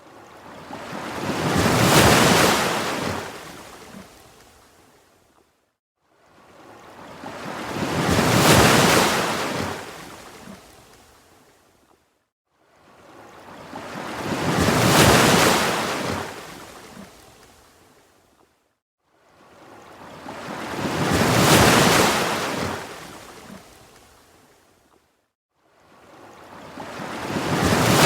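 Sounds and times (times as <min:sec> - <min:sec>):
ocean waves washing in: 0:26.0 - 0:28.0.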